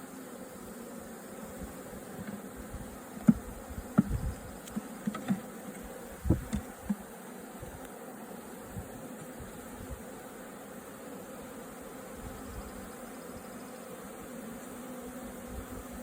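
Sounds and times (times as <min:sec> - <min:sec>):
honeybee swarm buzzing: 0:00.0 - 0:16.0.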